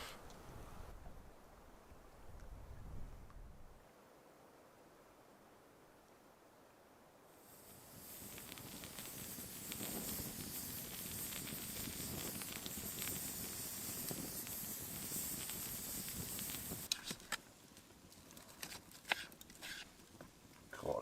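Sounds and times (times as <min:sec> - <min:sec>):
chilli sizzling in a pot: 0:07.4 - 0:17.2.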